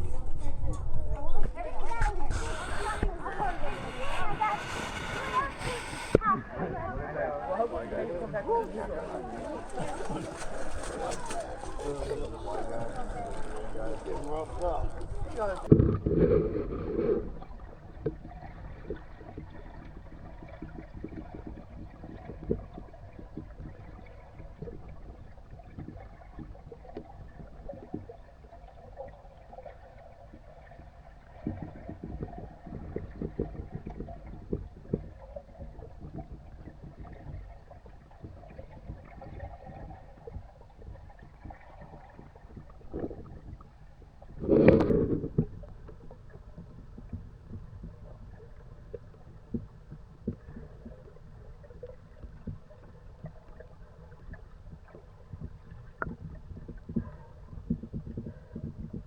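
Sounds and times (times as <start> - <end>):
water sloshing against kayak: 0.0 - 59.0
bump against kayak: 1.4 - 17.3.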